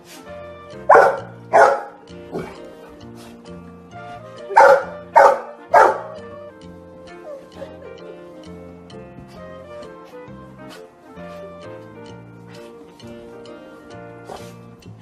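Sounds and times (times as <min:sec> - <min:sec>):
background music with steady beat: 0:00.0 - 0:15.0
dog barking: 0:00.9 - 0:02.6, 0:04.5 - 0:06.2.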